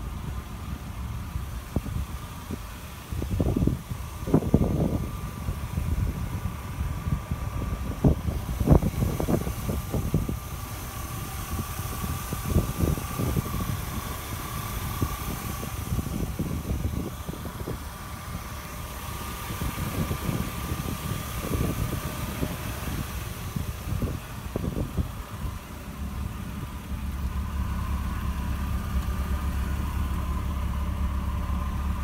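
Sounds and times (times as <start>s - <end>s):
car engine idling: 0.0s - 32.0s
wind on microphone: 1.6s - 26.7s.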